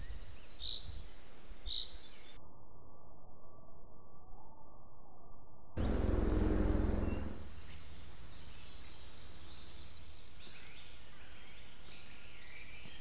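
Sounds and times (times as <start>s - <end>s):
birds singing: 0.0s - 2.4s, 5.8s - 13.0s
low rumble: 5.8s - 7.8s
low hum: 5.8s - 8.1s.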